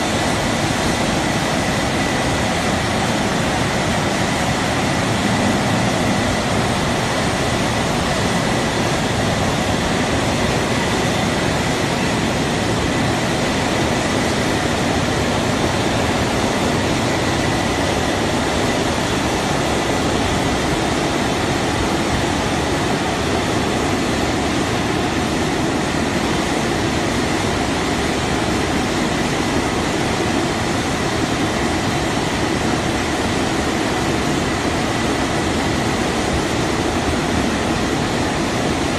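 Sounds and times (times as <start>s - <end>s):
car wash machinery rushing: 0.0s - 38.9s
faint steady whine: 0.0s - 38.9s.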